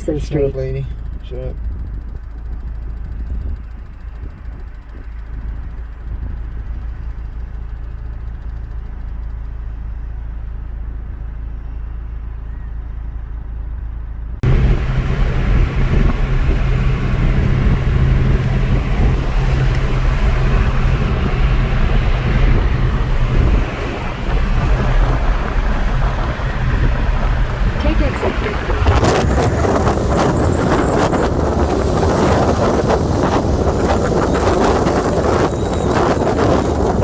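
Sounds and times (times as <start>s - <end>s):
road rumble inside car: 0.0s - 37.0s
steady low hum: 13.7s - 37.0s
loud rushing noise: 14.4s - 37.0s.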